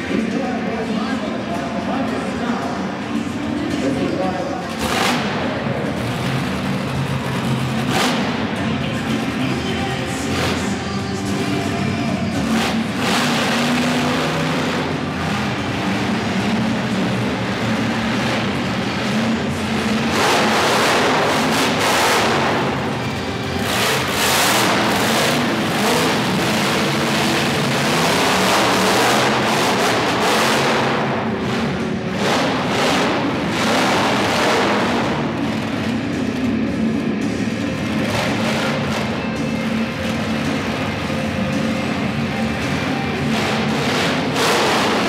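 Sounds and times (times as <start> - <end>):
monster truck engine revving: 0.0 - 45.0
music playing: 0.0 - 45.0.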